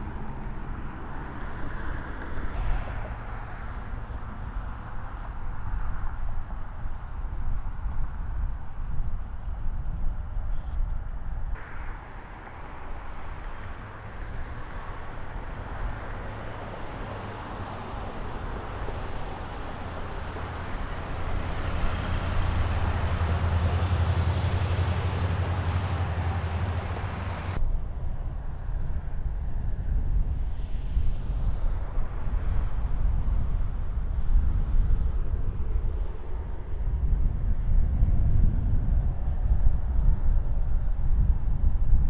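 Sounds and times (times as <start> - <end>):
traffic engine rumble and road hiss: 0.0 - 42.0.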